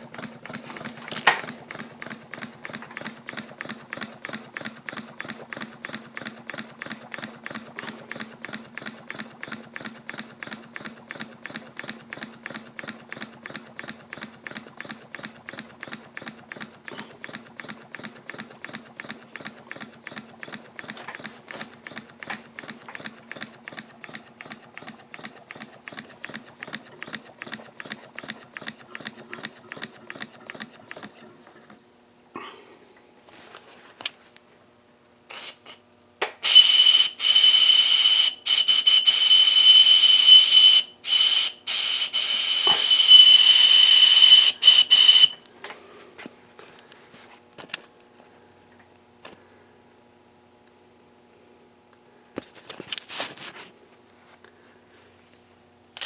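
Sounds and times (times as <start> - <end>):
model steam engine chuffing: 0.0 - 31.3, 36.4 - 45.4.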